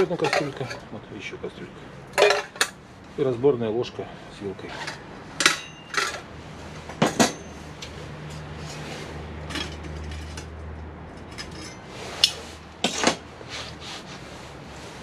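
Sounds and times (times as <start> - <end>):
metal cookware clinking: 2.2 - 2.7, 5.4 - 6.2
sharp metal clanks: 4.8 - 6.3, 7.0 - 7.6.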